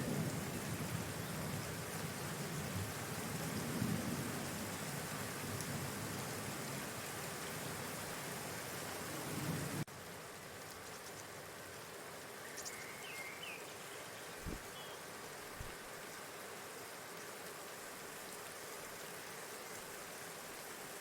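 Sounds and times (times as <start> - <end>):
outdoor rain-like hiss: 0.0 - 21.0.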